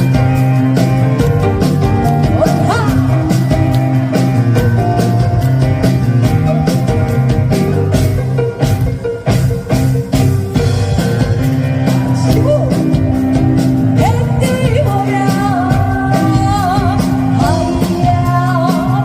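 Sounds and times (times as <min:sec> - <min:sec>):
bass guitar: 0:00.0 - 0:19.0
live band playing: 0:00.0 - 0:19.0
rock drum kit: 0:00.0 - 0:19.0
person singing with vibrato: 0:13.9 - 0:19.0.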